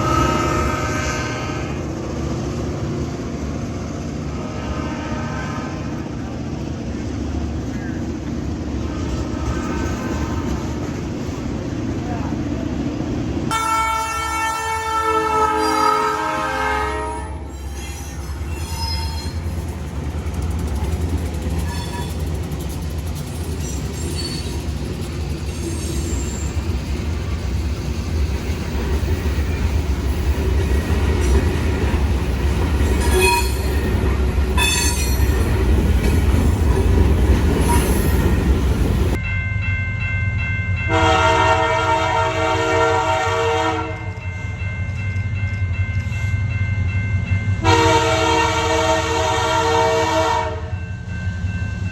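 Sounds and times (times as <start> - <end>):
train horn chord: 0.0 - 1.8, 13.5 - 17.5, 40.9 - 44.2, 47.6 - 50.8
passing train rumbling: 0.0 - 51.9
high wheel squeals: 17.4 - 19.6, 21.6 - 22.2, 23.6 - 24.8, 25.5 - 26.8, 37.6 - 38.6.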